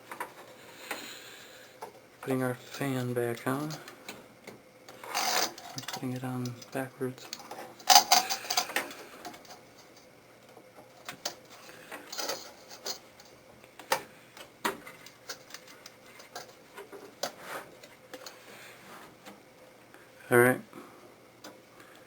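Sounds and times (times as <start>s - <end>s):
computer fan parts clicking: 1.7s - 18.4s.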